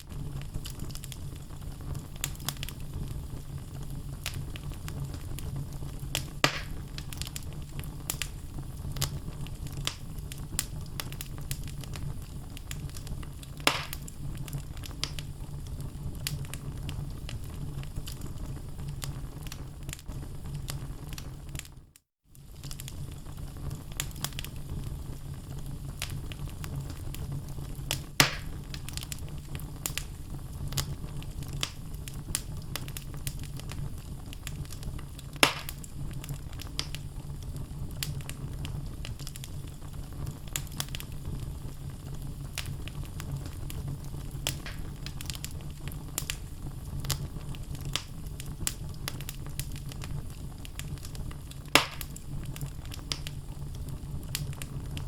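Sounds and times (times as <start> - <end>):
fire crackling: 0.0 - 55.0
low rumble of flames: 0.0 - 55.0
wood popping in fire: 0.0 - 55.0.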